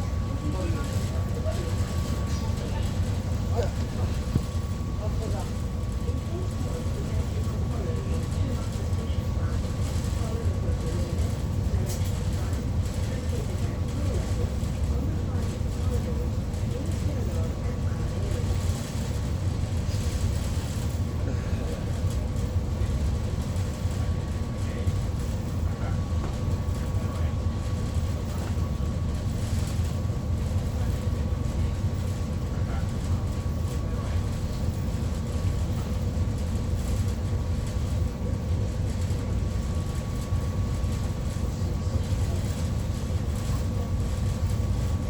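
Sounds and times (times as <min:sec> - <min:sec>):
ship engines rumbling: 0:00.0 - 0:45.0.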